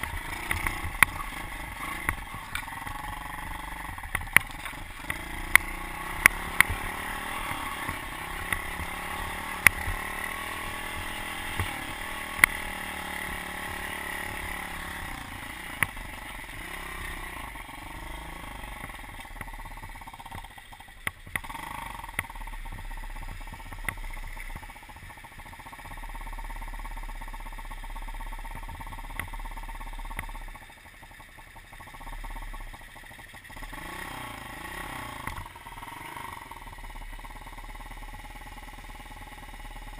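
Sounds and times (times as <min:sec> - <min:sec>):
small motorbike engine running: 0:00.0 - 0:39.9.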